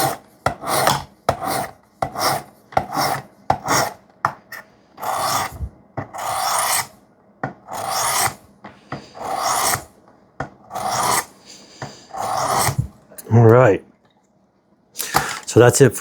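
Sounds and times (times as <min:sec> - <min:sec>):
knife swiped along sharpening stone: 0:00.0 - 0:06.9, 0:07.7 - 0:08.4, 0:09.0 - 0:09.9, 0:10.7 - 0:12.9.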